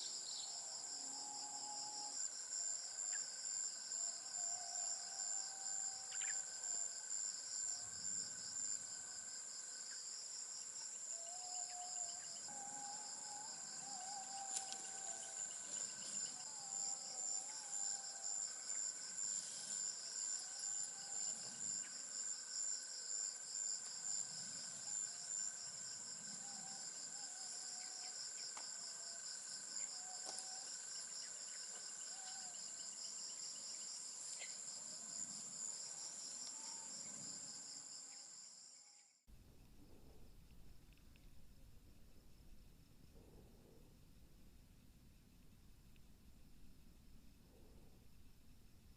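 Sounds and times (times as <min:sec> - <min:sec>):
pulsing insect call: 0:00.0 - 0:39.2
high-pitched insect drone: 0:10.8 - 0:39.1
faint wavering calls: 0:10.9 - 0:22.0.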